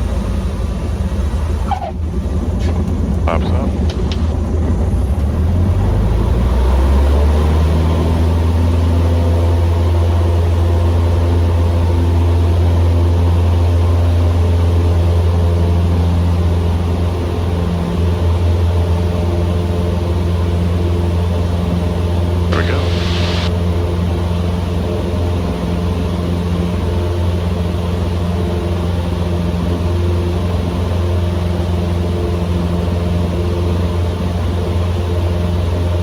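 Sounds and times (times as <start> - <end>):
airplane engine drone in cabin: 7.8 - 36.0.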